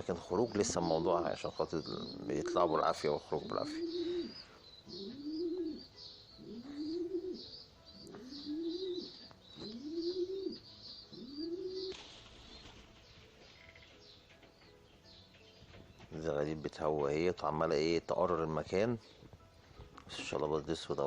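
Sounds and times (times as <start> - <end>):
high chirping: 0.0 - 16.7
pigeon cooing: 1.7 - 12.9.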